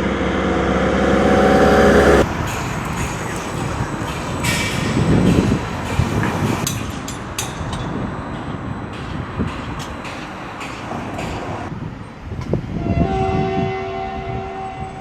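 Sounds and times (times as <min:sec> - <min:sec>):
train rumbling on track: 0:00.0 - 0:15.0
sharp clicks of train wheels: 0:01.1 - 0:12.6.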